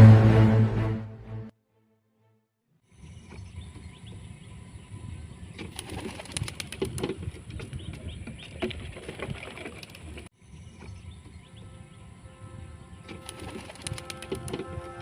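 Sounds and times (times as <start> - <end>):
sharp wing claps: 5.6 - 7.0, 13.1 - 14.9
wings flapping: 5.6 - 10.3, 13.1 - 15.0.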